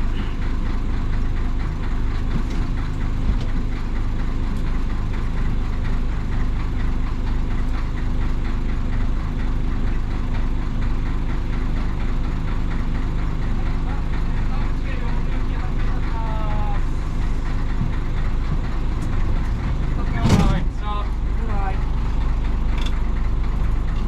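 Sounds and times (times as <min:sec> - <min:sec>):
diesel engine clattering: 0:00.0 - 0:24.0.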